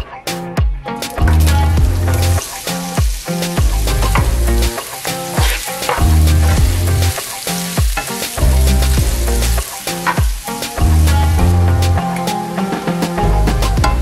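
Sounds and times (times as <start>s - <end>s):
music with deep bass beat: 0.6s - 14.0s
onions sizzling in oil: 1.1s - 14.0s
wooden spatula stirring in pan: 2.1s - 11.2s.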